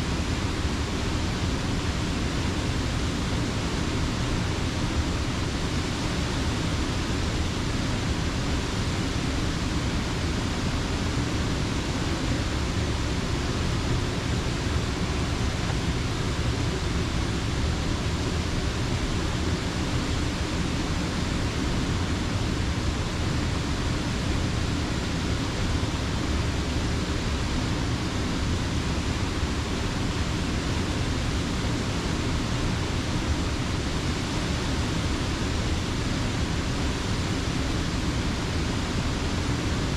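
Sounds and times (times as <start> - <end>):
water rushing over a dam: 0.0 - 39.9.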